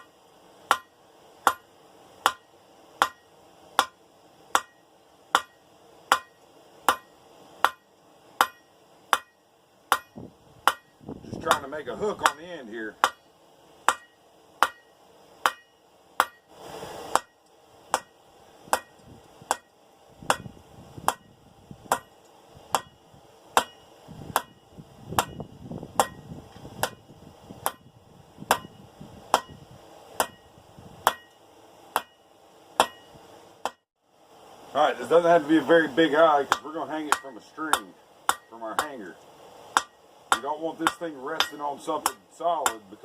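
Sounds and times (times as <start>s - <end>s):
hammer striking steel on anvil: 0.7s - 16.5s, 17.1s - 20.5s, 21.1s - 21.3s, 21.9s - 23.0s, 23.6s - 24.6s, 25.2s - 25.4s, 26.0s - 26.2s, 26.8s - 27.0s, 27.6s - 27.8s, 28.5s - 29.6s, 30.2s - 32.2s, 32.8s - 33.9s, 36.4s - 39.0s, 39.7s - 42.9s.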